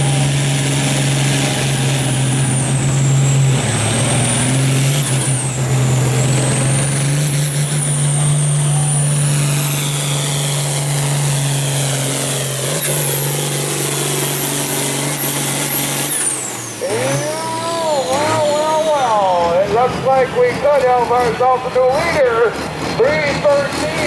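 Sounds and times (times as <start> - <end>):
tractor diesel engine under load: 0.0 - 24.0
high turbo whistle: 8.2 - 19.1.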